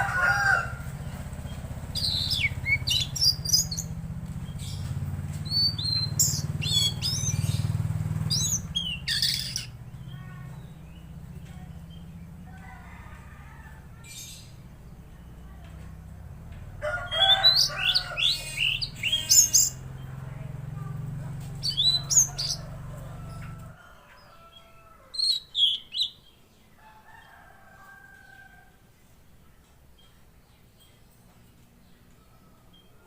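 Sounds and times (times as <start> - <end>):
bird whistling and trilling: 2.0 - 3.9, 5.5 - 7.7, 8.3 - 9.8, 21.6 - 22.5.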